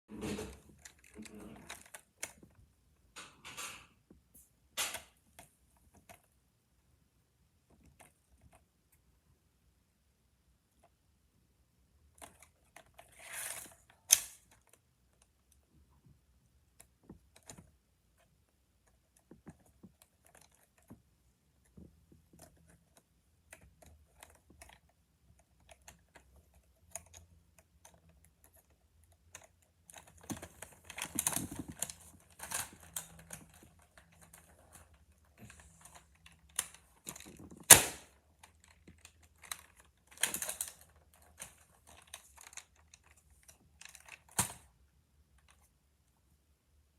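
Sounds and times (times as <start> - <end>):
plastic toy clicks and rattles: 0.2 - 2.5, 21.7 - 44.6.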